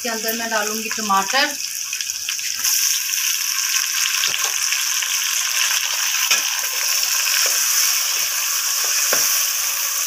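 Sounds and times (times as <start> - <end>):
meat and tomatoes sizzling in oil: 0.0 - 10.0.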